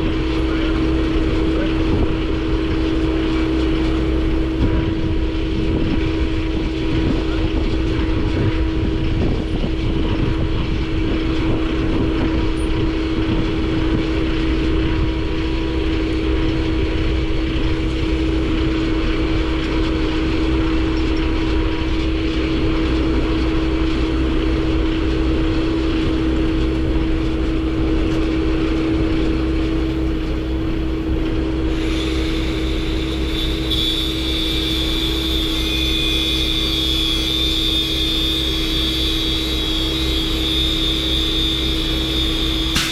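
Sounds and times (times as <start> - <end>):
vehicle engine drone: 0.0 - 42.9
high hiss: 31.8 - 42.9.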